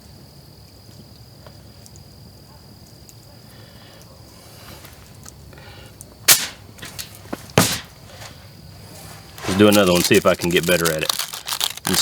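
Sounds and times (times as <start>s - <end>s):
insects droning: 0.0s - 12.0s
loud sharp knock: 6.3s - 7.0s, 7.6s - 7.9s.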